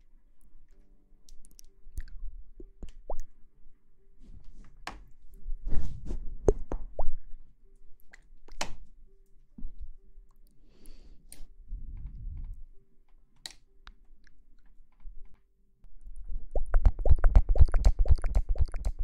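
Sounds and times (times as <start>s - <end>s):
soft wet plops and clicks: 0.4s - 3.4s, 8.0s - 8.8s, 16.6s - 19.0s.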